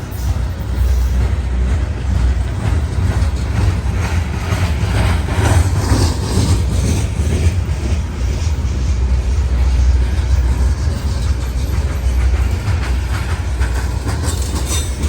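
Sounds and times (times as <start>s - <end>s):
rail and wheel noise: 0.0s - 15.0s.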